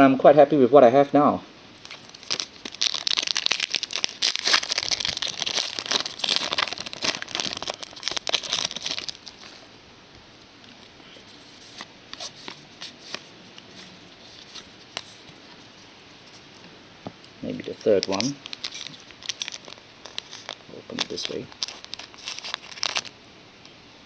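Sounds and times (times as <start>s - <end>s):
wrapper crinkling and tearing: 1.8s - 9.6s, 11.4s - 15.3s, 17.5s - 23.2s
cards clicking and rustling: 17.6s - 23.1s.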